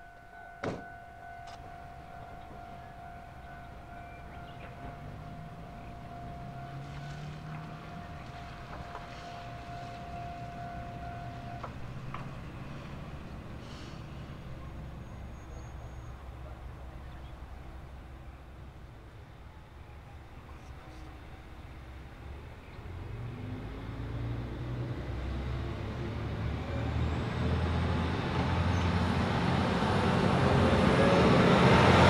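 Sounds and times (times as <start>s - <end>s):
high warning tone: 0.0s - 12.0s
diesel railcar passing: 0.0s - 32.0s.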